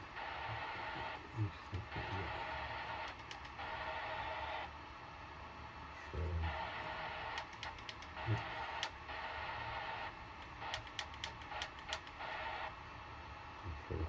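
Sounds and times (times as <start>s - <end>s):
radio hiss: 0.0s - 4.8s, 5.8s - 14.0s
radio control clicks: 2.9s - 3.8s, 7.2s - 9.0s, 10.4s - 12.2s.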